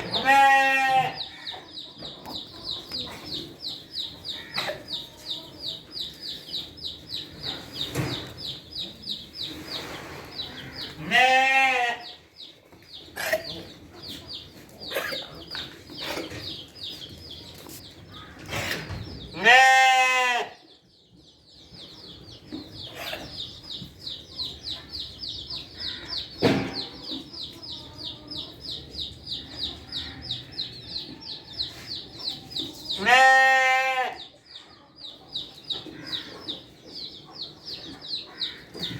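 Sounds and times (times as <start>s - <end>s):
goat bleating: 0.1s - 1.2s, 11.0s - 12.1s, 19.4s - 20.5s, 33.0s - 34.2s.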